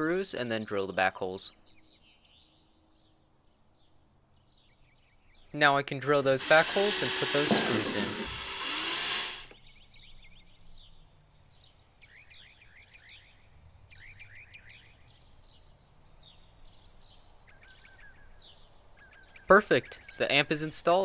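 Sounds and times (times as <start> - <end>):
faint birds chirping: 9.6 - 20.6.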